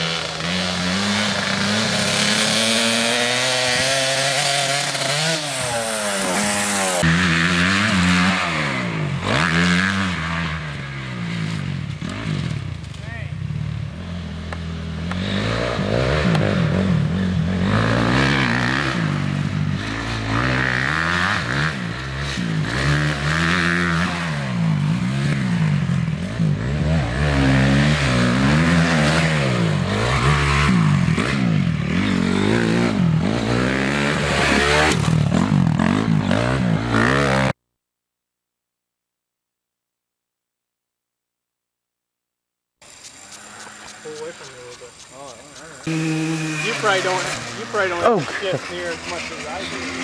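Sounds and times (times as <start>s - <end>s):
dirt bike engine revving: 0.0s - 37.6s, 42.8s - 50.0s.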